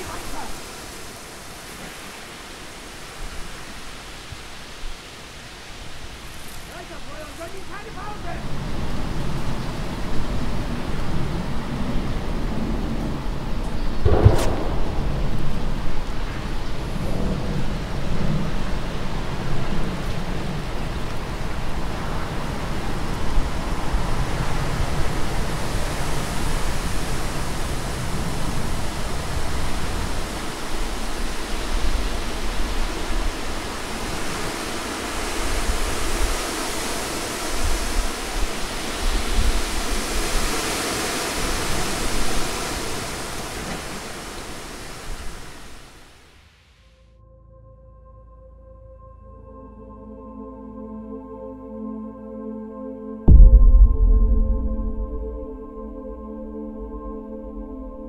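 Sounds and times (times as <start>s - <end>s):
sea surf breaking on beach: 0.0s - 13.5s, 14.1s - 46.4s.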